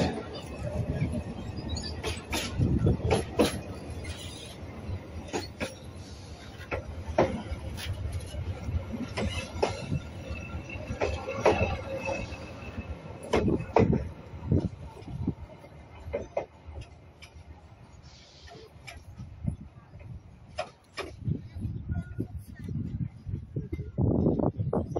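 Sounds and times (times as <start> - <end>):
wheels clacking and knocking: 0.0 - 4.6, 5.2 - 17.5
train rumbling along track: 0.0 - 24.9.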